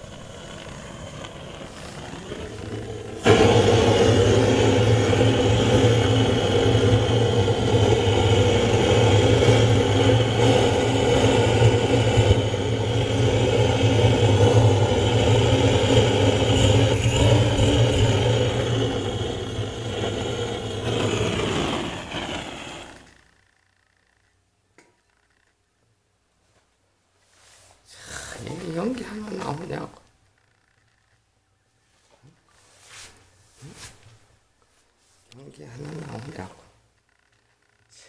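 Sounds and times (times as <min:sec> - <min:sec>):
engine humming: 0:00.0 - 0:23.1.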